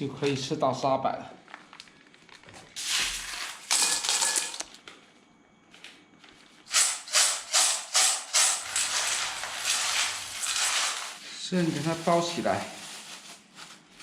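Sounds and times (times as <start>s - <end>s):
clams rattling in a container: 6.7s - 12.0s.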